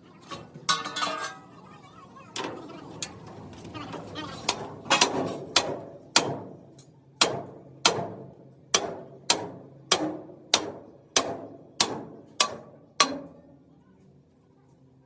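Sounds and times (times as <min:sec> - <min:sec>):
hammer striking metal: 0:04.5 - 0:13.4.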